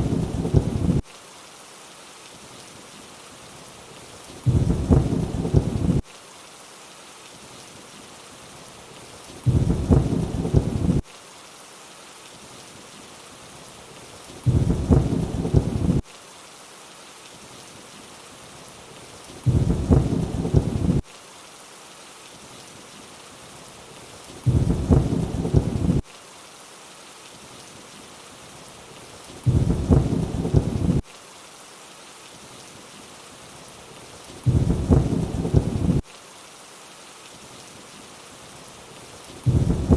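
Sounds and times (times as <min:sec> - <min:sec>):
low thunder rumble: 0:00.0 - 0:01.0, 0:04.5 - 0:06.0, 0:09.5 - 0:11.0, 0:14.5 - 0:16.0, 0:19.5 - 0:21.0, 0:24.5 - 0:26.0, 0:29.5 - 0:31.0, 0:34.5 - 0:36.0, 0:39.5 - 0:39.9
steady rain hiss: 0:00.0 - 0:39.9.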